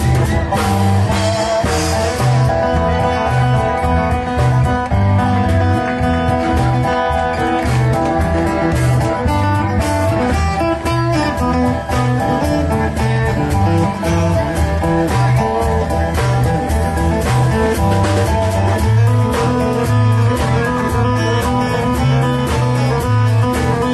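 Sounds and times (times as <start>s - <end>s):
live band playing: 0.0s - 23.9s
plucked guitar: 0.0s - 23.9s.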